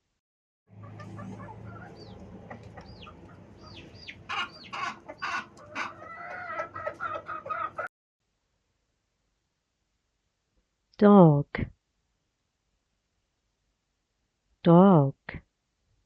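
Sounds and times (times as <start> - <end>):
hens clucking: 0.7 - 7.9
high peeping calls: 0.9 - 7.8.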